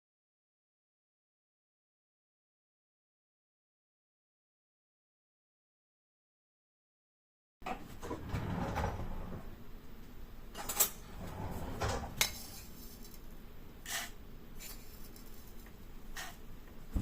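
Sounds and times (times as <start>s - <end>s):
dishes and utensils clinking: 11.8s - 13.3s.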